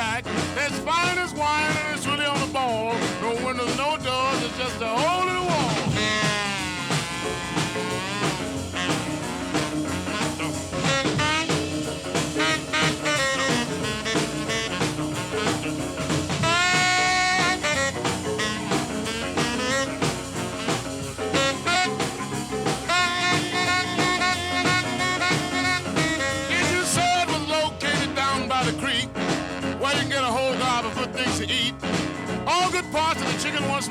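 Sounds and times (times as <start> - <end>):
instrumental blues band: 0.0 - 33.9
lead instrument sliding notes: 4.4 - 27.4.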